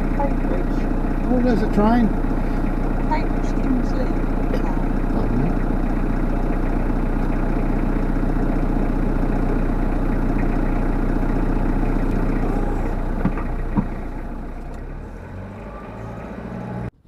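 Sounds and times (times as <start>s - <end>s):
van engine and road noise: 0.0s - 17.0s.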